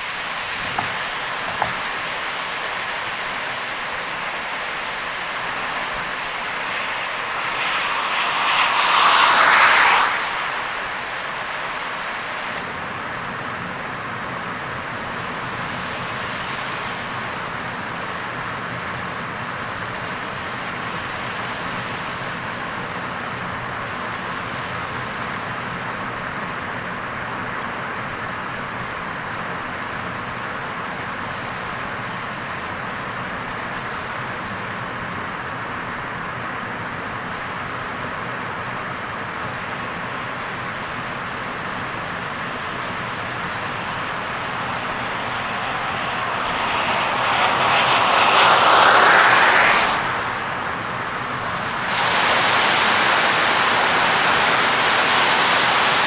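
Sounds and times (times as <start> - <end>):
heavy rain: 0.0 - 12.6, 40.3 - 56.0
car tyres on wet road: 0.0 - 56.0
loud rushing noise: 0.1 - 12.6, 40.6 - 56.0.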